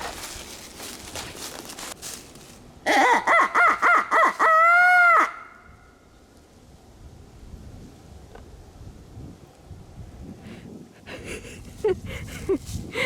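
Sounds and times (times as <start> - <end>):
wind noise: 5.5 - 13.0.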